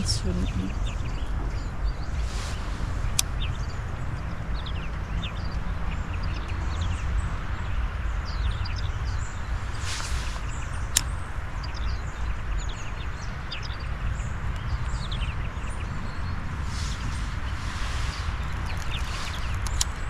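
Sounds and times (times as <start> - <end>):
birds chirping: 0.0 - 20.0
brief hiss: 2.2 - 3.2, 9.8 - 10.6, 16.6 - 20.0
steady rushing background: 14.9 - 20.0.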